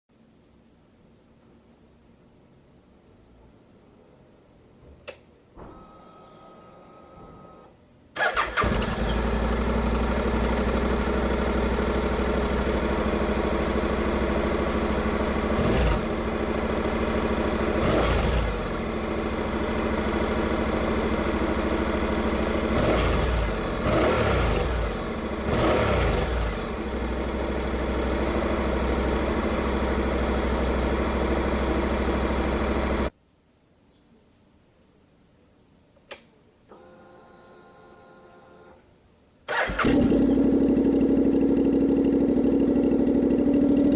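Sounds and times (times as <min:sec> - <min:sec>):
motorcycle engine starting and idling: 0:05.6 - 0:33.1, 0:39.4 - 0:43.9.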